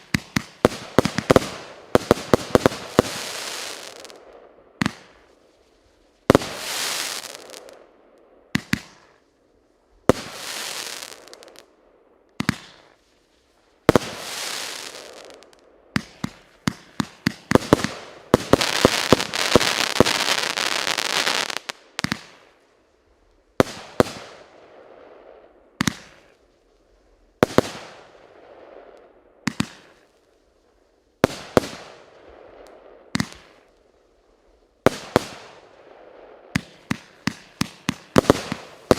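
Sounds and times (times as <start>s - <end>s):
firework crackle: 0.0s - 7.9s, 10.0s - 11.7s, 12.4s - 22.6s, 34.5s - 38.9s
firework reports: 13.9s - 22.3s.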